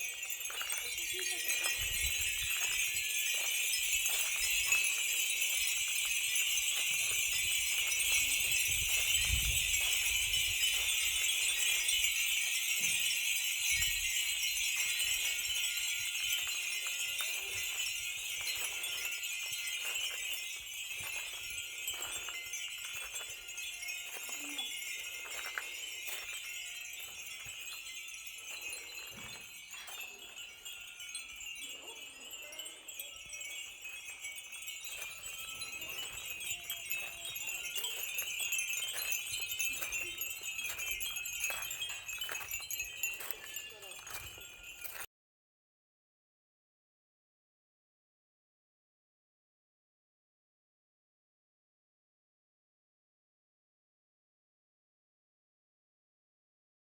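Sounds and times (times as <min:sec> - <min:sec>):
wind bells tinkling: 0:00.0 - 0:45.1.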